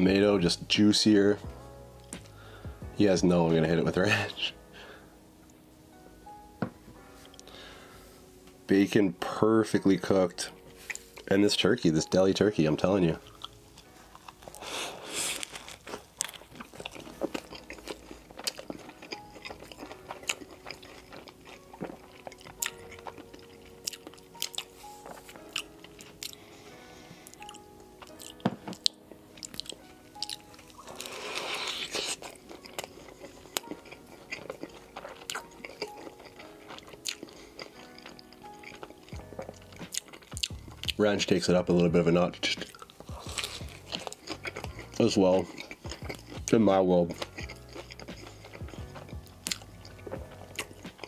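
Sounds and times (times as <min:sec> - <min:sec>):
soft background music: 0:00.0 - 0:51.0
biting and chewing crunchy sandwich: 0:13.0 - 0:51.0.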